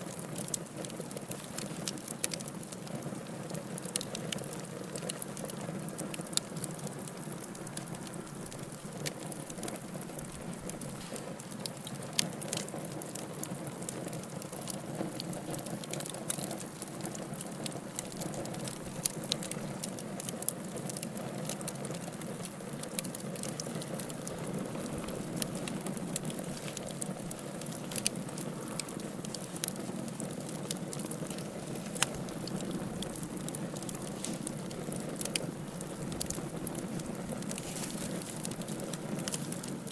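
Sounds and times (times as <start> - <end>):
fire crackles and pops: 0.0 - 39.9
wood fire burning: 0.0 - 39.9.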